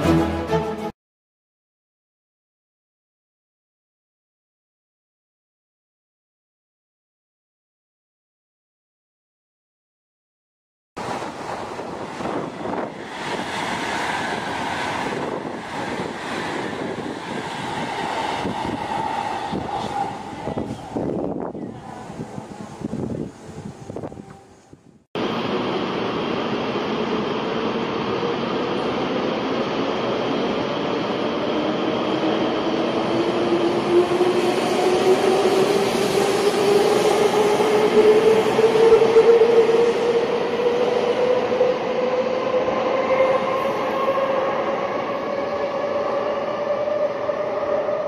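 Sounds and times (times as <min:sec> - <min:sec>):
high-speed train passing: 0:11.0 - 0:48.0.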